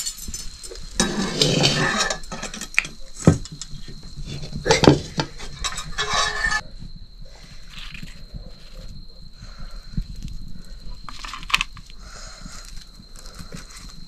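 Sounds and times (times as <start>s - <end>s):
utensil scraping metal pan: 0.9s - 3.4s, 4.2s - 6.6s.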